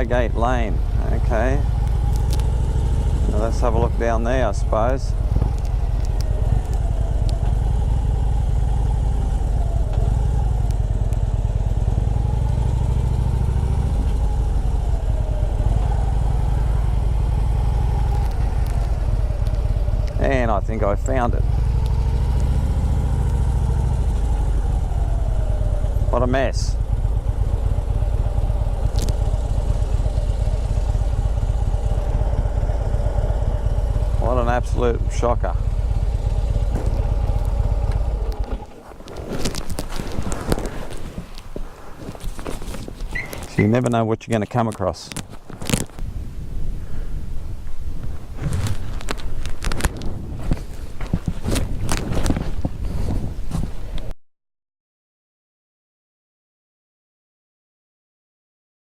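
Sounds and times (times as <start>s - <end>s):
motorcycle engine running: 0.0s - 43.6s.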